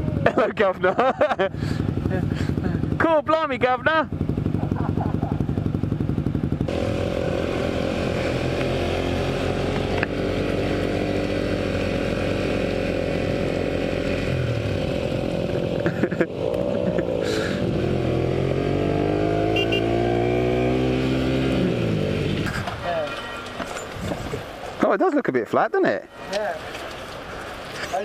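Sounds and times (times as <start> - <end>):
motorcycle engine accelerating: 1.0 - 22.8.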